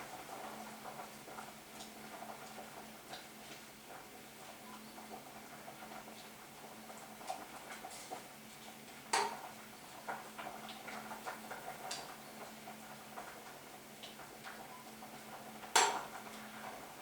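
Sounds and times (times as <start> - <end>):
utensils clicking against a pot: 9.1 - 9.5, 15.6 - 16.3.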